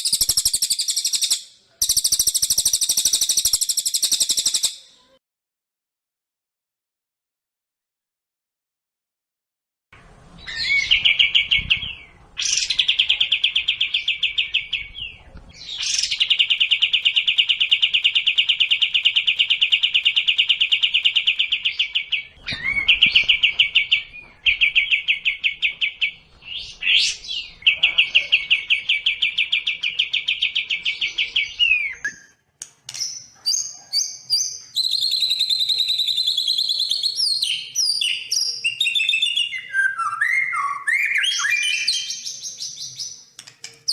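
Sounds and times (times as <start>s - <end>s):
songbird trilling: 0.0s - 4.9s.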